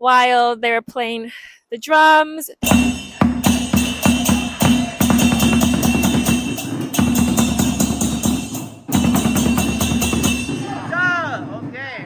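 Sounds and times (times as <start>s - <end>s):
hand cymbals crashing: 2.6s - 11.2s
drum beating: 2.6s - 12.0s.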